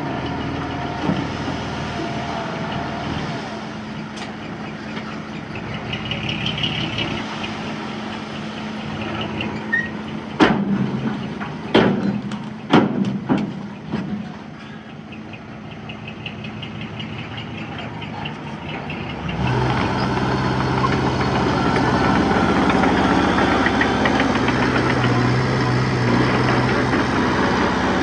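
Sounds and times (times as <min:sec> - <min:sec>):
diesel engine of heavy machinery: 0:00.0 - 0:28.0
sharp knocks: 0:11.7 - 0:14.1.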